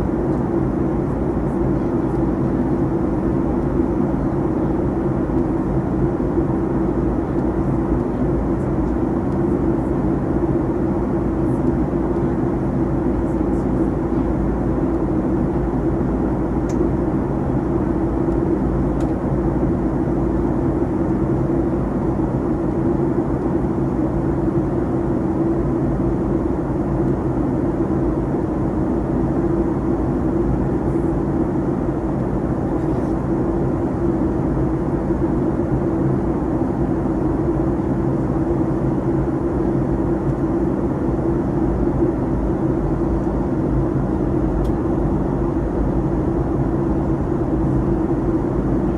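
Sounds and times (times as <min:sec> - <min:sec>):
constant low hum: 0:00.0 - 0:48.9
jet engine and airflow noise: 0:00.0 - 0:48.9.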